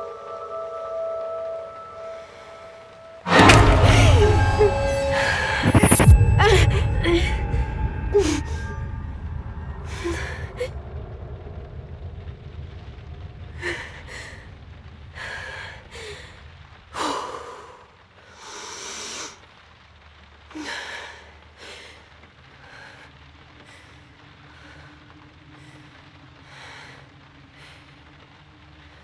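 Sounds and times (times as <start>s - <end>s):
low drone: 0.0s - 17.0s.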